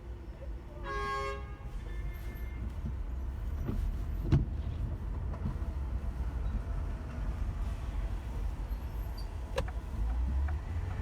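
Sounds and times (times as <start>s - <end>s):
car and traffic rumble: 2.6s - 11.0s.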